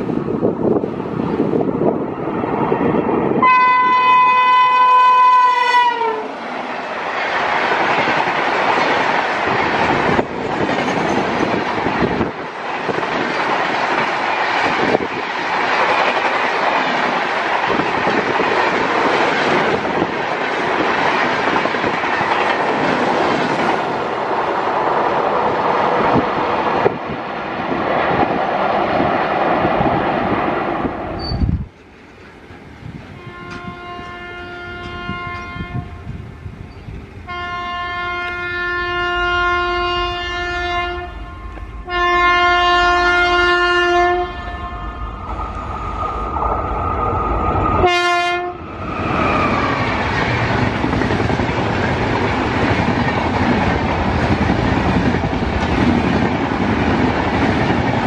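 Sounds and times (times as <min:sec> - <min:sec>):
train rushing past: 0:00.0 - 0:58.0
locomotive horn long note: 0:03.4 - 0:06.4, 0:33.2 - 0:36.0, 0:37.2 - 0:45.3, 0:47.8 - 0:48.6.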